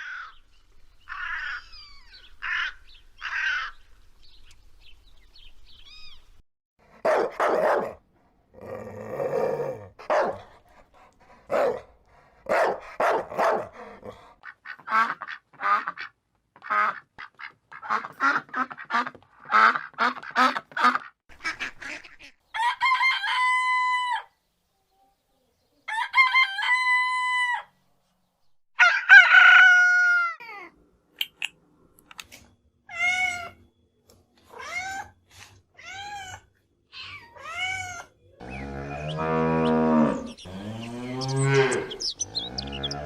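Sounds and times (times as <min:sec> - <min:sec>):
rooster crowing: 0:22.5 - 0:24.3, 0:25.9 - 0:27.7, 0:28.8 - 0:30.4, 0:38.4 - 0:43.0.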